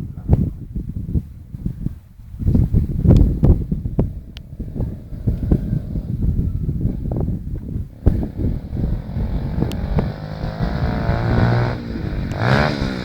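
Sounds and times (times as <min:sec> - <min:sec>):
microphone rumble: 0:00.0 - 0:13.0
pit bike engine revving: 0:03.8 - 0:13.0.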